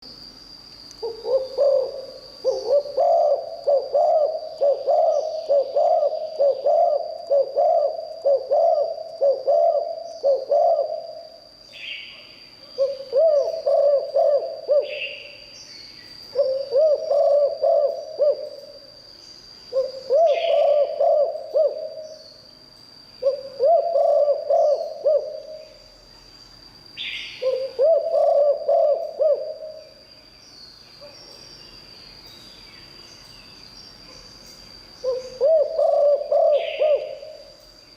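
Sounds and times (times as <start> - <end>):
dove cooing: 1.0 - 11.4, 12.8 - 15.4, 16.3 - 18.7, 19.7 - 22.2, 23.2 - 25.8, 27.4 - 29.9, 35.0 - 37.5.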